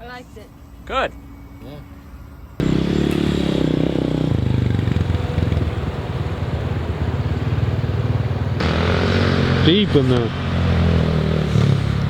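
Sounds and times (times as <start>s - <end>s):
dirt bike engine running: 2.6s - 12.0s.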